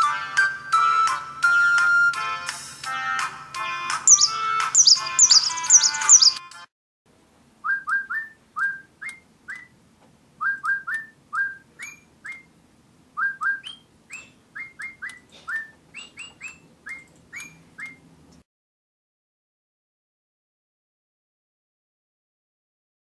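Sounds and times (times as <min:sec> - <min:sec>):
electronic toy bird chirping: 0:04.1 - 0:06.5.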